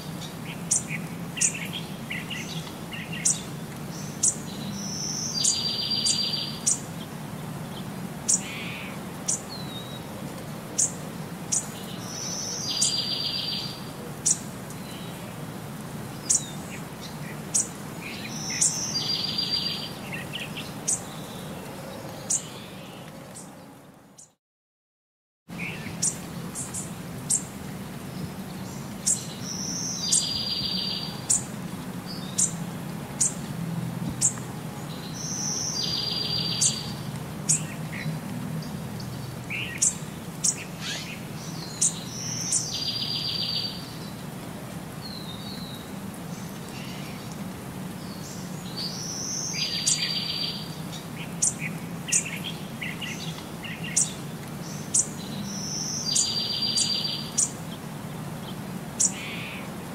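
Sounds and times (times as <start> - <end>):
birds chirping and singing: 0.2 - 6.9, 16.2 - 23.6, 28.2 - 31.5, 34.2 - 44.1, 48.0 - 57.6.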